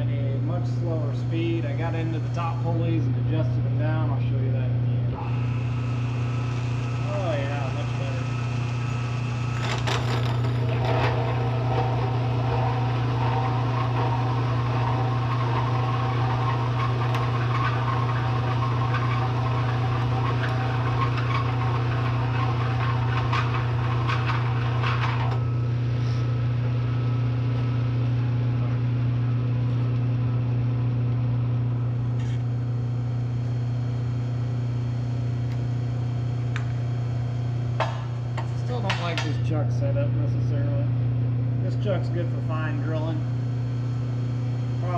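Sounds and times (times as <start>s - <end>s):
milling machine humming: 0.0s - 44.9s
hole saw grinding into steel: 9.5s - 25.4s.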